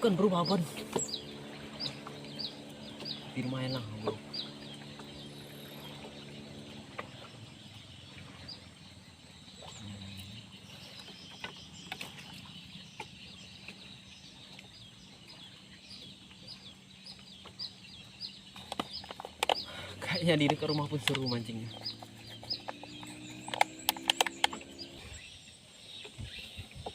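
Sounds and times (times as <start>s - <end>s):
low steady hum: 0.0s - 26.9s
sharp clicks: 20.4s - 24.9s.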